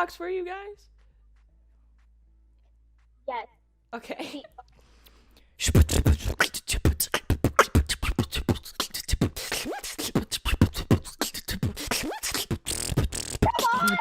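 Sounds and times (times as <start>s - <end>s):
person beatboxing: 5.6s - 14.0s.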